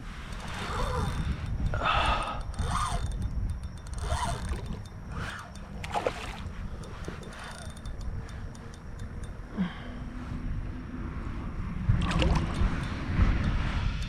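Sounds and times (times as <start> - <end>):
water splashing against a kayak: 4.3 - 7.6, 12.0 - 12.8.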